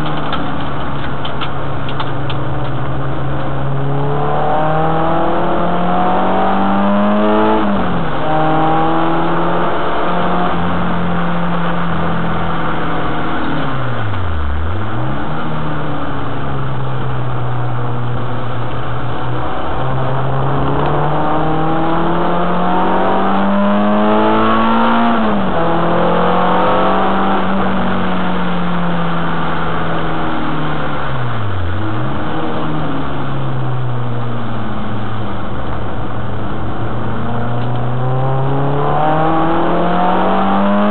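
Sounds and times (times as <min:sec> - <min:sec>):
car engine revving hard: 0:02.5 - 0:40.9.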